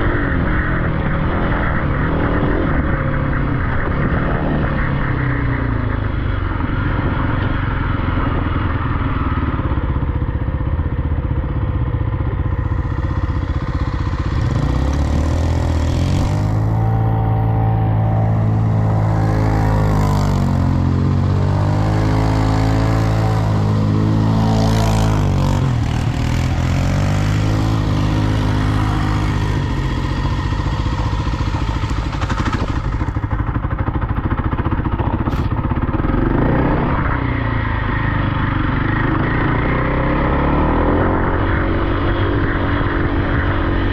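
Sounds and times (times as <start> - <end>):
dirt bike engine revving: 11.9 - 43.9.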